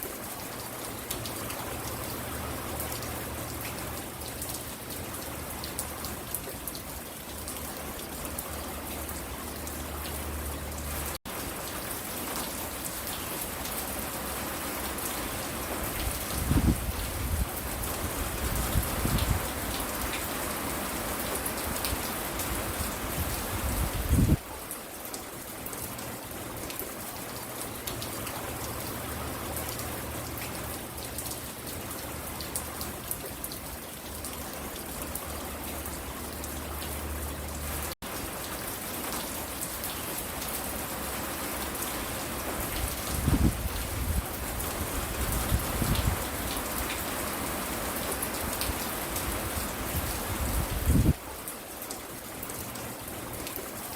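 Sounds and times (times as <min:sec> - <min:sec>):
rain pattering on porch: 0:00.0 - 0:53.9.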